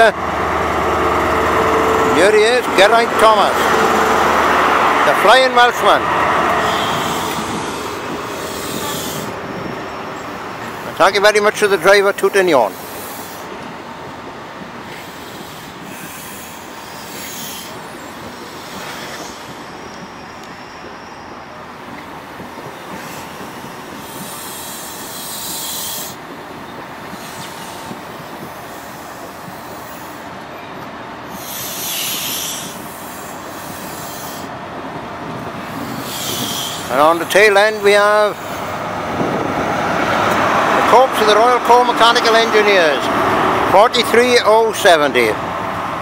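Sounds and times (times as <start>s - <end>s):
train wheels rumbling on rail: 0.0s - 46.0s
high-pitched hissing bursts: 31.3s - 34.5s, 35.6s - 36.9s.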